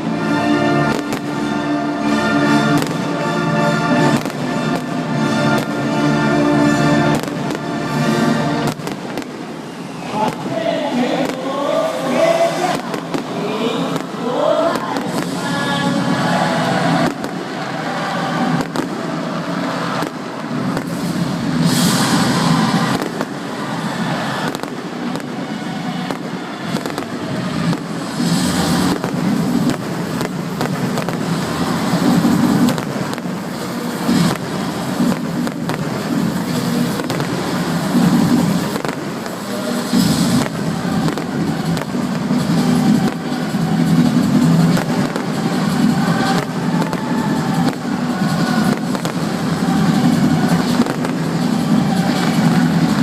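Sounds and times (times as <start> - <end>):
fireworks bangs and crackling: 0.0 - 53.0.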